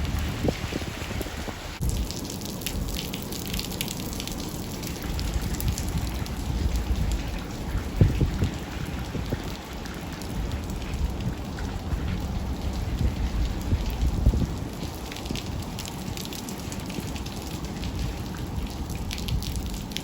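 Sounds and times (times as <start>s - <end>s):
steady low rumble: 0.0s - 3.0s
meltwater dripping: 1.8s - 20.0s.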